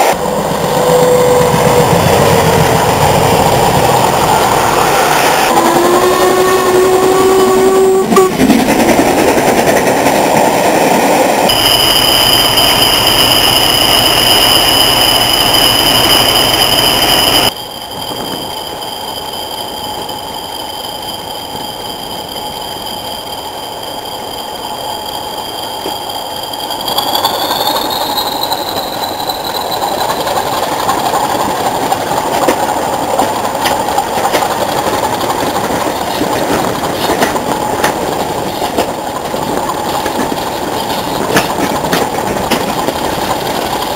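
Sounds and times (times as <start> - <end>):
high turbocharger whistle: 0.0 - 2.6, 4.1 - 8.4, 11.4 - 30.4
diesel locomotive engine working hard: 0.0 - 43.9
train rumbling on rails: 0.0 - 43.9.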